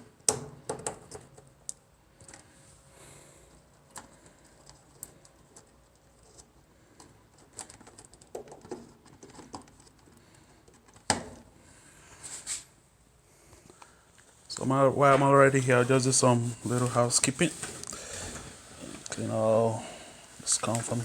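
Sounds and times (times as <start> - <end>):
scraping rustle: 14.5 - 21.0.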